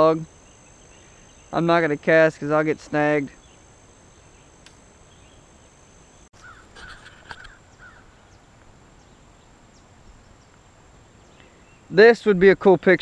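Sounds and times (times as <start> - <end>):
harsh bird calls: 6.4 - 8.4.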